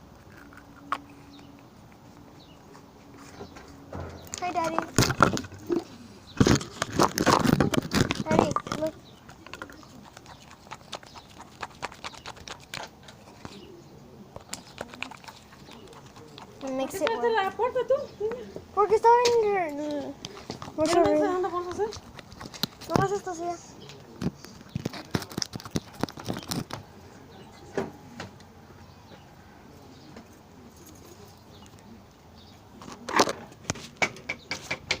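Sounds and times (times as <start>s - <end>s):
sticky clicks and pops: 24.2s - 26.8s.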